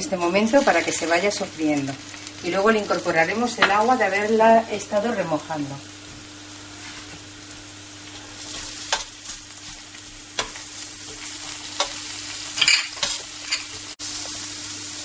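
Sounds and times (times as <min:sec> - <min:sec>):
onion and garlic sizzling in oil: 0:00.0 - 0:15.0
metal spoon scraping a pan: 0:10.4 - 0:13.8.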